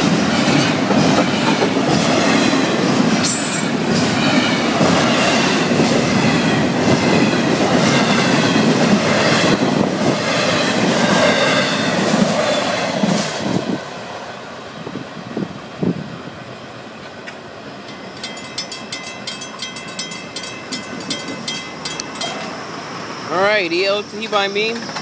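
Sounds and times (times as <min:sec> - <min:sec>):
freight train rumbling and clattering: 0:00.0 - 0:25.0
train wheel squeal: 0:02.9 - 0:04.6, 0:17.9 - 0:25.0
crossing bell ringing: 0:17.8 - 0:25.0.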